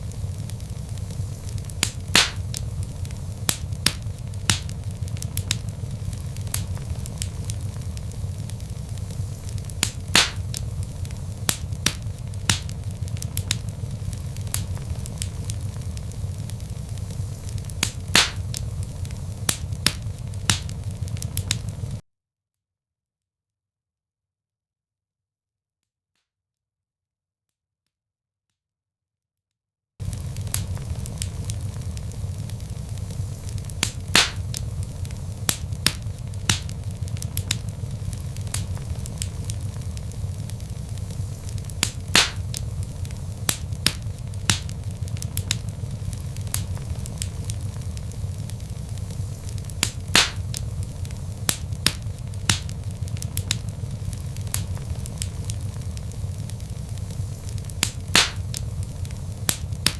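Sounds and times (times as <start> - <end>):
log fire crackling: 0.0 - 22.0, 30.0 - 59.9.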